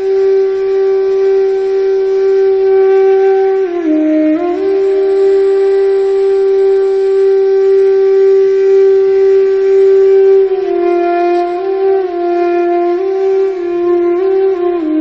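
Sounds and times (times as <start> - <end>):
wind instrument melody: 0.0 - 15.0.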